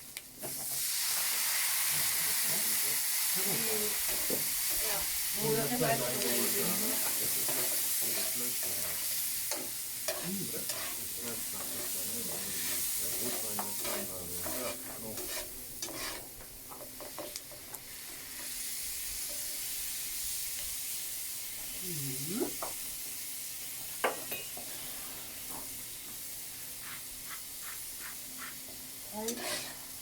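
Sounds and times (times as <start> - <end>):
garlic sizzling in a pan: 0.0 - 30.0
spoon scraping a pan: 6.2 - 17.7, 29.3 - 30.0.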